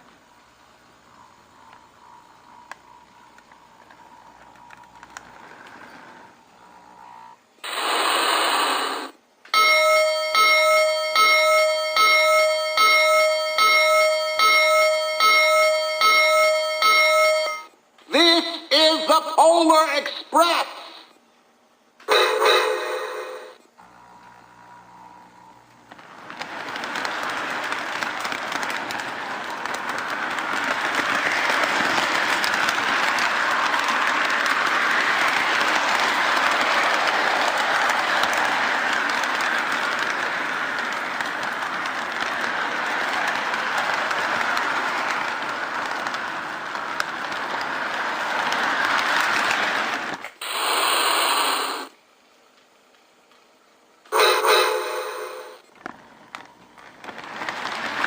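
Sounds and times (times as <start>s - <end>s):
model train cars rattling on track: 2.6s - 6.4s, 25.8s - 50.9s, 54.1s - 58.0s.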